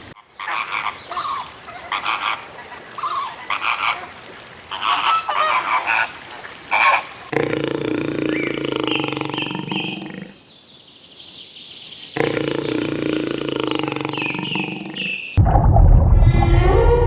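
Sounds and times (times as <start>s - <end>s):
small birds chirping: 0.3s - 15.4s
large animal low call: 7.3s - 10.4s, 12.2s - 15.3s, 16.1s - 17.0s.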